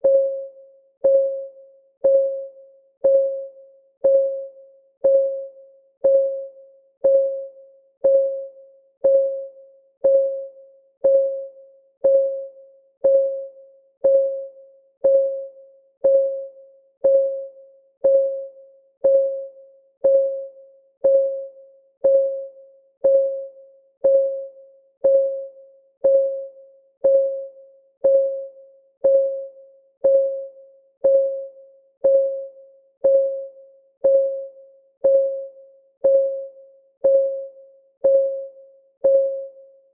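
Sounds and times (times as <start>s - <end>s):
timer ticking: 1.0s - 39.6s.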